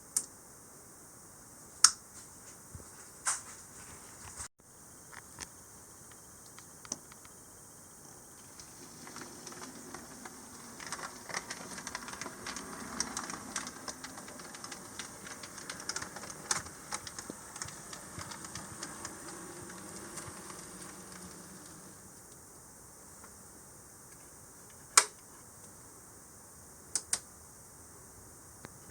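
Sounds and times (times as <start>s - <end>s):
model train motor hum: 8.4s - 22.3s
wheels clicking on rails: 8.4s - 22.4s.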